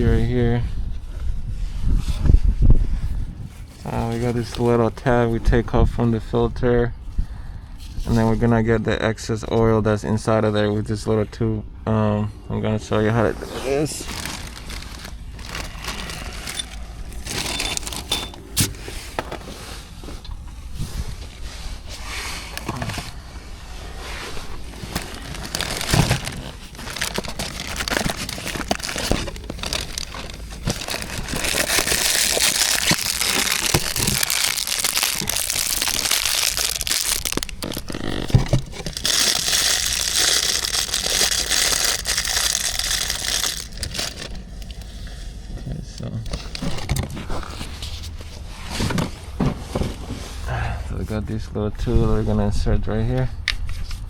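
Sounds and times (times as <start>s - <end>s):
crinkling handling noise: 3.0s - 6.4s, 13.2s - 50.5s.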